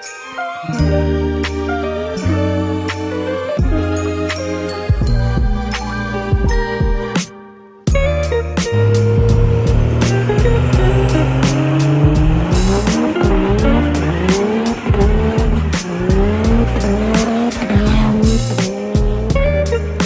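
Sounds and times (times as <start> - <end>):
music with steady beat: 0.0 - 20.0
vehicle engine revving: 8.8 - 20.0.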